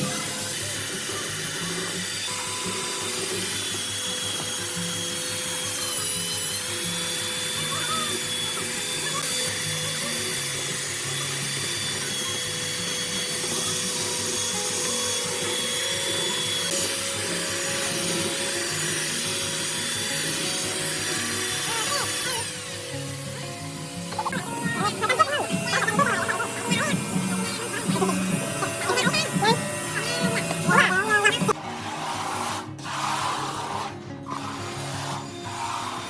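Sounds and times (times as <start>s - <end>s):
power tool whining: 0.0s - 36.0s
background music: 14.8s - 36.0s.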